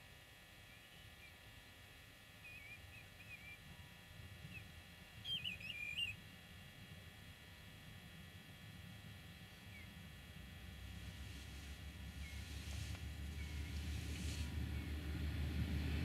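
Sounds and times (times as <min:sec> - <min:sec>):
faint low rumble: 0:09.6 - 0:16.0.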